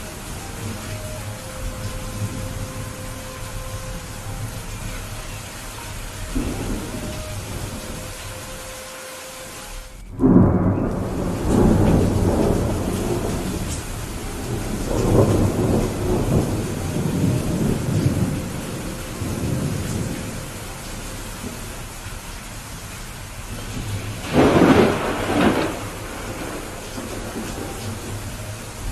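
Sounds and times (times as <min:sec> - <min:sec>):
steady rain: 0:00.0 - 0:28.9
thunderclap with deep rumble: 0:10.2 - 0:20.6, 0:23.4 - 0:28.9.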